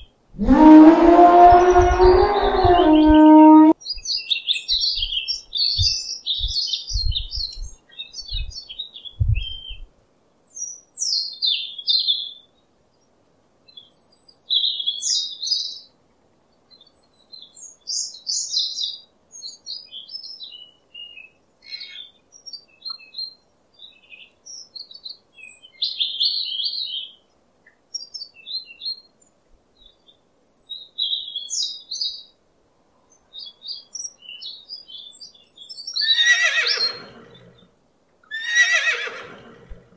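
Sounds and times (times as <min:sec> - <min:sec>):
songbirds chirping: 0:00.0 - 0:39.9
low thumps: 0:00.4 - 0:03.7.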